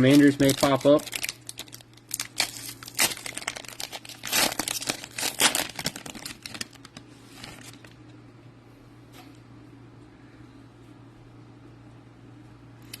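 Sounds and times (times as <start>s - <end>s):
plastic wrapper tearing open: 0.0s - 8.0s.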